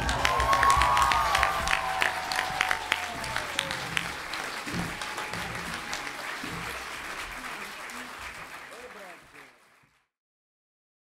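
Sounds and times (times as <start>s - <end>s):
crowd whooping: 0.0s - 8.0s
audience clapping and cheering: 0.0s - 10.2s.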